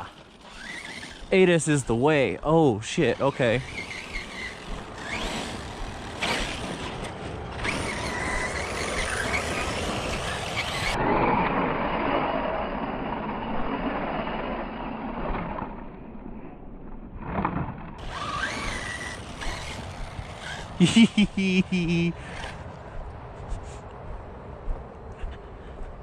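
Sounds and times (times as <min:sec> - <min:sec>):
electric motor whining: 0:00.0 - 0:01.4, 0:03.2 - 0:11.0, 0:18.0 - 0:22.6
toy truck driving over dirt: 0:00.0 - 0:02.0, 0:03.0 - 0:15.9, 0:17.2 - 0:22.7.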